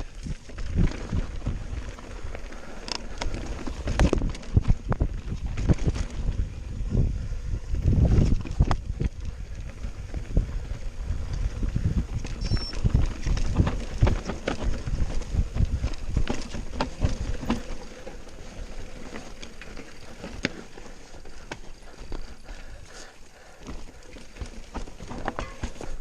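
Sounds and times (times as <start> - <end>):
wind rumble on microphone: 0.0 - 2.4, 3.1 - 17.8
bike rattling over stones: 0.0 - 26.0.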